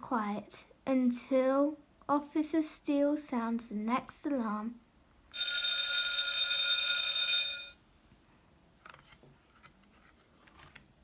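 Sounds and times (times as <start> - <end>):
alarm bell from small speaker: 5.3 - 7.8.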